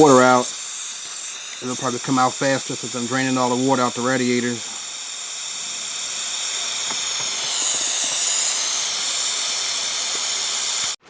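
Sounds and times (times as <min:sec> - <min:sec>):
air hissing through bleed vent: 0:00.0 - 0:11.0.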